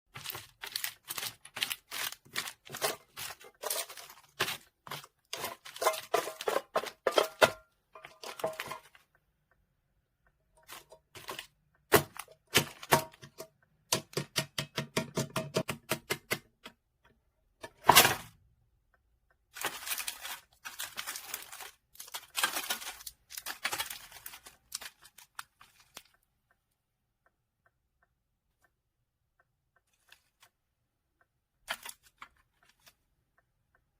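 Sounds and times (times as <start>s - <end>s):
packaging crinkling and clicking: 0.1s - 9.0s, 10.6s - 13.4s, 19.5s - 26.2s, 31.7s - 33.0s
packaging tearing: 0.2s - 6.2s, 19.6s - 26.0s.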